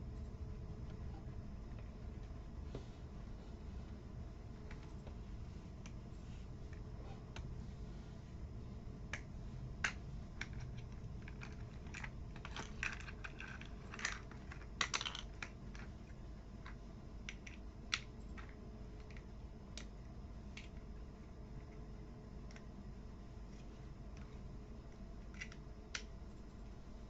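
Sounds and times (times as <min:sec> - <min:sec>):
plastic toy blocks clicking: 0:09.8 - 0:19.9, 0:25.2 - 0:26.1.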